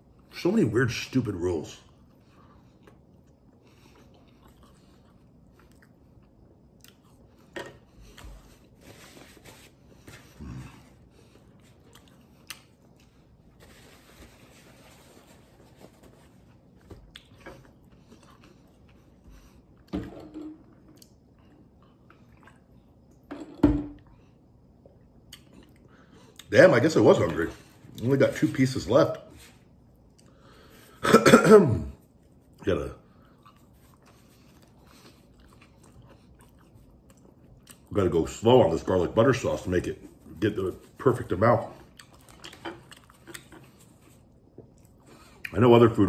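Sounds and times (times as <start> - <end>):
man chewing with mouth clicks: 1.9 - 8.8, 10.1 - 13.5, 16.0 - 19.9, 20.6 - 23.2, 24.8 - 26.5, 32.1 - 37.9, 41.8 - 45.6.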